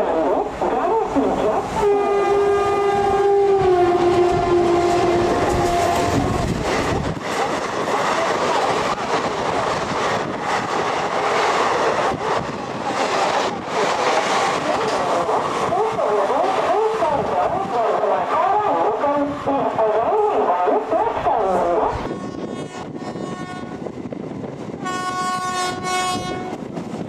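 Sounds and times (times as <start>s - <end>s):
train coaches rushing past: 0.0s - 27.0s
locomotive horn blast: 1.8s - 6.5s, 21.5s - 23.9s, 24.8s - 26.7s.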